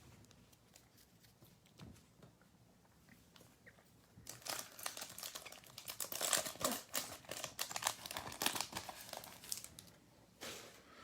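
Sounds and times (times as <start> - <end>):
foil wrapper crinkling: 4.2 - 9.9.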